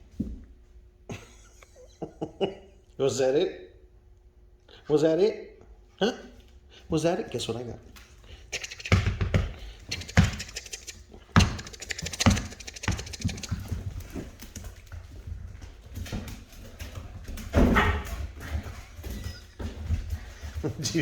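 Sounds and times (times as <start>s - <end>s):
puppies scuffling with thumps: 8.6s - 21.0s.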